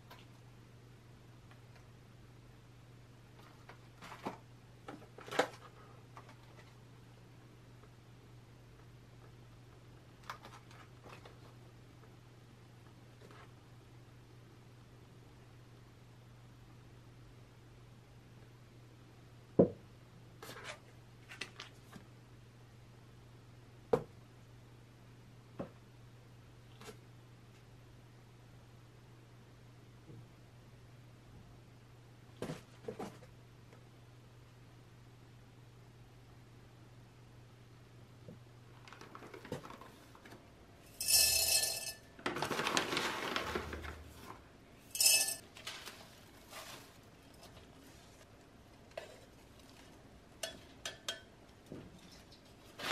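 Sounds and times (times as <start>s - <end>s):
pots clinking against metal tub: 45.0s - 45.4s
potting soil rustling and scraping: 45.6s - 48.3s.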